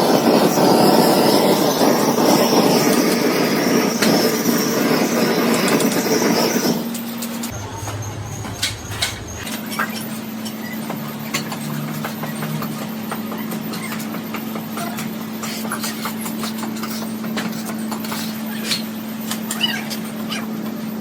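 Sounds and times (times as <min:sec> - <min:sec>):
machine humming: 0:06.1 - 0:17.9.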